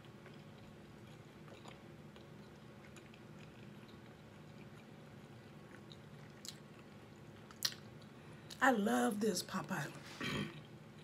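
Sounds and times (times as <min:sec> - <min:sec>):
close-mouthed chewing: 0:00.0 - 0:08.6.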